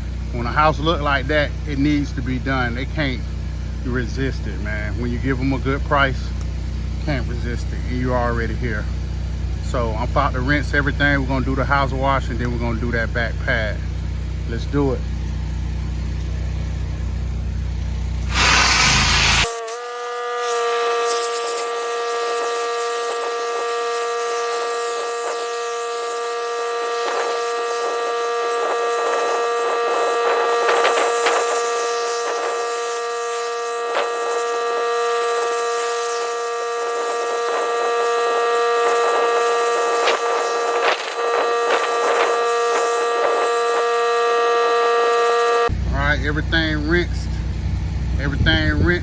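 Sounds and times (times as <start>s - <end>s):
pressure washer whine: 0.0s - 49.0s
water spray hiss: 18.2s - 19.5s.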